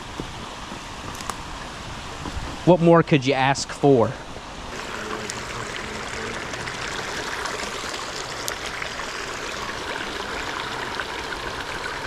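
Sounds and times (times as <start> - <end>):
creek water trickling: 4.7 - 12.0.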